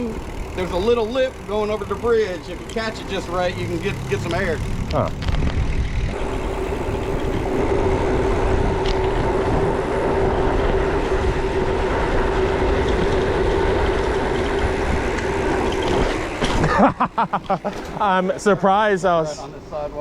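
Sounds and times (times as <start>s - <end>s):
bicycle whirring hum: 0.0s - 20.0s
wind rushing over microphone: 4.6s - 16.7s.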